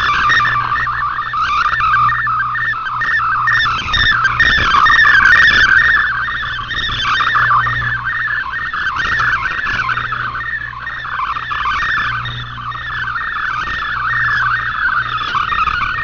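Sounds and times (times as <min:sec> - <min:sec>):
steady low hum: 0:00.0 - 0:16.0
warbling digital radio data tones: 0:00.0 - 0:16.0.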